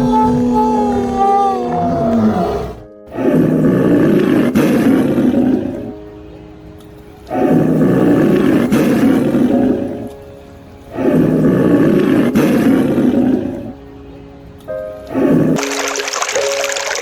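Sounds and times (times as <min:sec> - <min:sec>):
big cat roaring: 0:00.0 - 0:06.0, 0:07.3 - 0:10.1, 0:10.9 - 0:13.8, 0:15.1 - 0:15.6
soft background music: 0:00.0 - 0:17.0.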